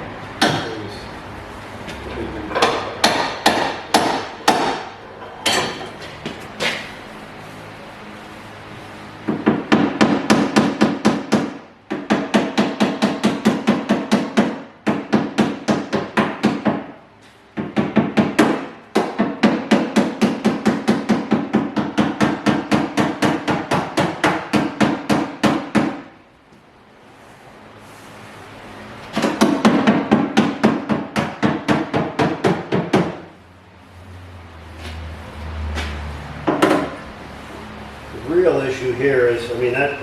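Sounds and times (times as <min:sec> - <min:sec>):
hammer tapping on sheet steel: 0:00.4 - 0:00.7, 0:02.6 - 0:05.8, 0:09.2 - 0:16.9, 0:17.6 - 0:26.1, 0:29.2 - 0:33.3, 0:35.8 - 0:37.0.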